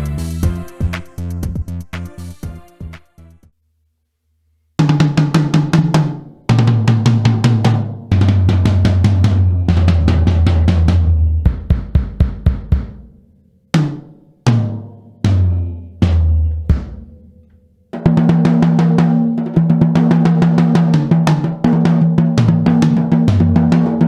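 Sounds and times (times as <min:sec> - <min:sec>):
fast tom and snare run with cymbals: 0:00.0 - 0:03.1, 0:04.8 - 0:13.2, 0:18.0 - 0:24.0
low drum strokes ringing: 0:06.5 - 0:13.1, 0:13.8 - 0:24.0.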